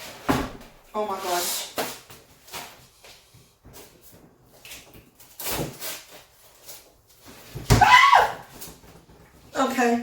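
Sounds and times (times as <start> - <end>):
knocks and scrapes of boxed fridge: 0.0 - 2.9.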